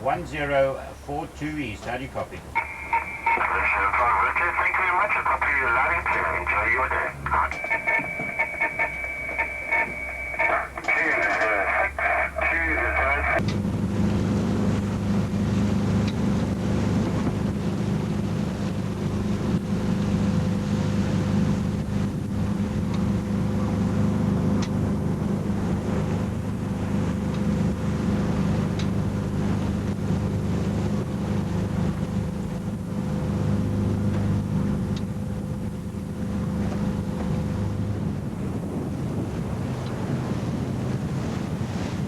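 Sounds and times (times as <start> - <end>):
wind and water rushing: 0.0 - 42.0
low motor hum: 11.9 - 42.0.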